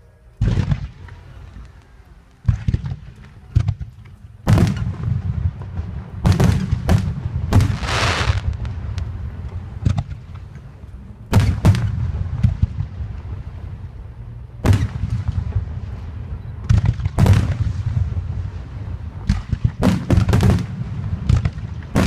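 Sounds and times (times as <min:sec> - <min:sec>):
fireworks crackling: 0:00.0 - 0:14.0
fireworks booming with echo: 0:00.4 - 0:22.0.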